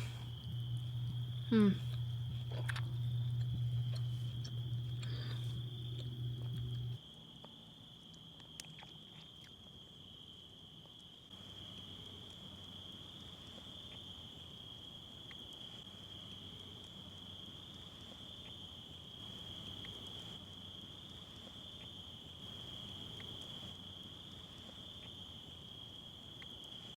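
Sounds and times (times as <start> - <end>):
high-pitched insect chorus: 0.0 - 7.0
loud low hum: 0.0 - 7.0
faint ticks: 0.3 - 7.0.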